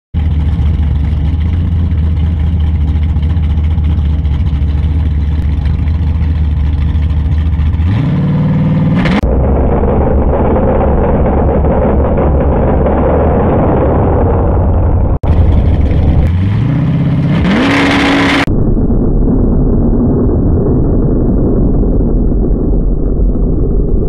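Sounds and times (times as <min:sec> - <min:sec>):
car engine idling and revving: 0:00.1 - 0:18.5
dull noisy engine running: 0:00.1 - 0:24.0.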